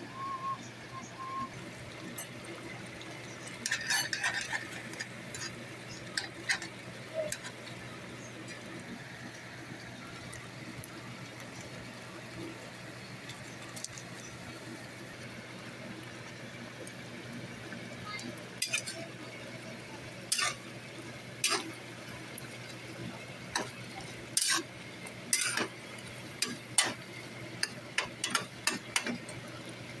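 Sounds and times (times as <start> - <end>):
utensil scraping a pan: 3.4 - 7.7, 18.6 - 19.0, 20.3 - 20.7, 21.4 - 21.8, 23.6 - 24.7, 25.3 - 29.2.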